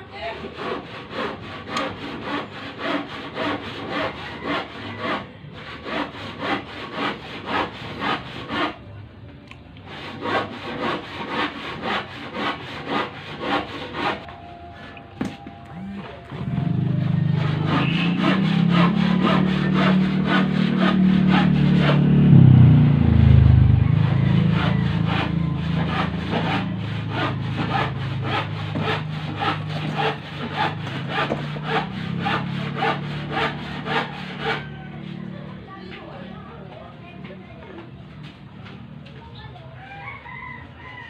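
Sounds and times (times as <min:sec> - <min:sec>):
engine starting and running: 0:15.7 - 0:31.7.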